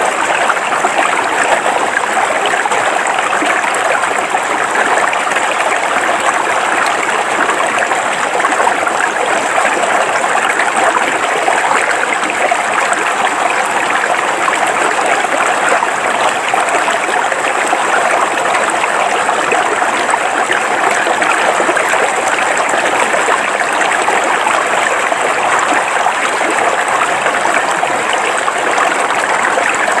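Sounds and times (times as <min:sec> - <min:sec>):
river water flowing over rocks: 0:00.0 - 0:30.0.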